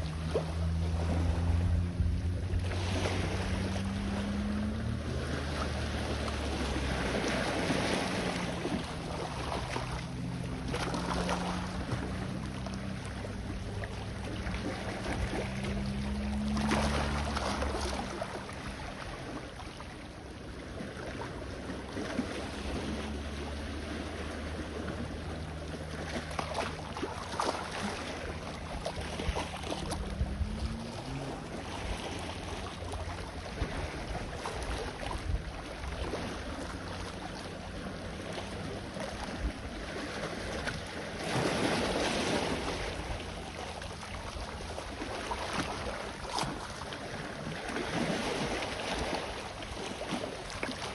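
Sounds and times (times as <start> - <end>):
sea waves washing on shore: 0.0 - 50.9
distant engine humming: 0.1 - 20.7, 21.4 - 34.6.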